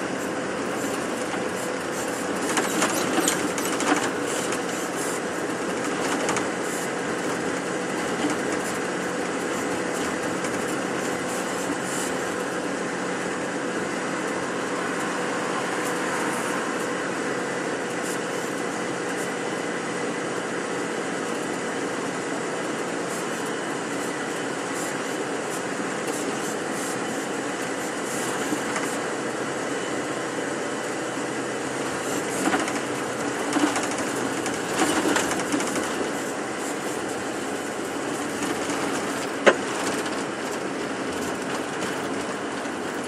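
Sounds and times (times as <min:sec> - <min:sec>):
bus engine and road noise: 0:00.0 - 0:43.0.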